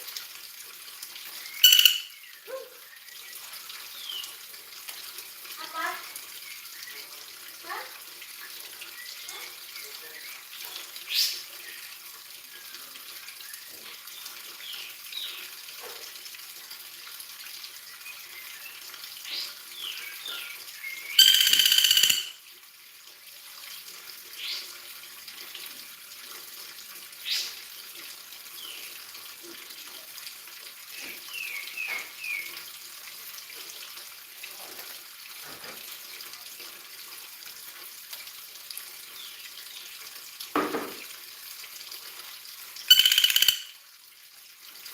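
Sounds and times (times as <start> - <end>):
small bird chirping: 1.5 - 2.7, 19.9 - 22.4, 42.9 - 43.8.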